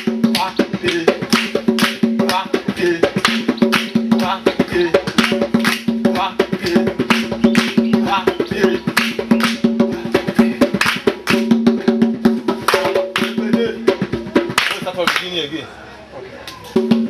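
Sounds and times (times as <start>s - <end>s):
drum strikes: 0.0s - 15.2s
wood-block strikes: 0.0s - 15.3s.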